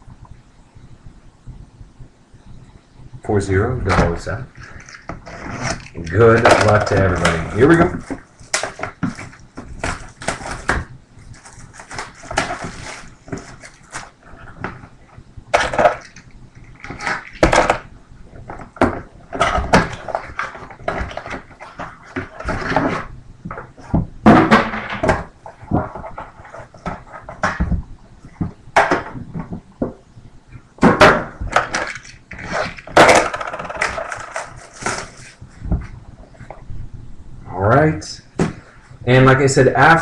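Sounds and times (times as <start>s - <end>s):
packaging rustling and tearing: 4.5s - 14.9s, 31.5s - 35.6s.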